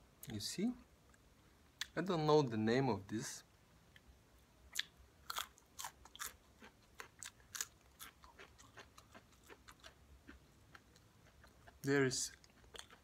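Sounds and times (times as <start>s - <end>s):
crunchy chewing: 4.7s - 13.0s.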